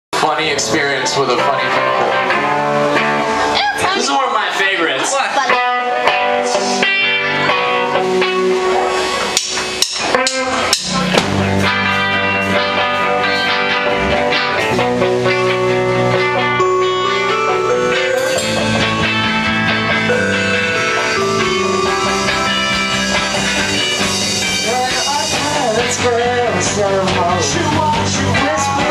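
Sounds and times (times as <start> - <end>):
drums: 0.1 - 28.9
live band playing guitar song: 0.2 - 28.9.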